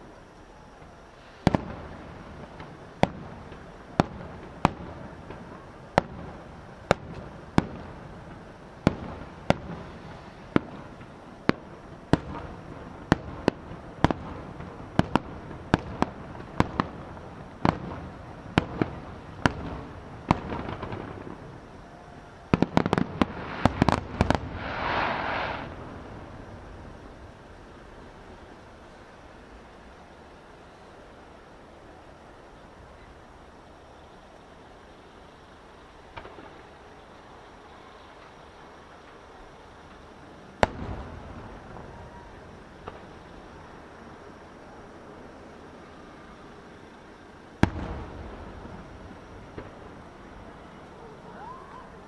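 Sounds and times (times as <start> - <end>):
firework crackling hiss: 0.0 - 52.0
firework shell bursts: 22.5 - 26.3.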